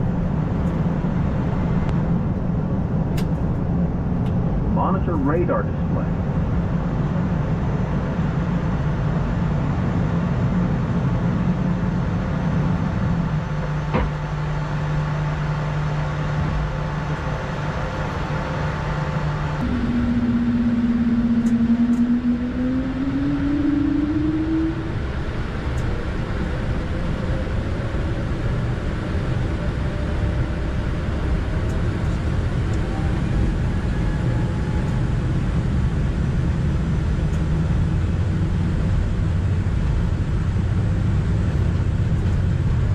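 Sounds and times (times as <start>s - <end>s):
turbofan engines humming: 0.0s - 42.9s
tone rising in pitch: 19.6s - 25.2s.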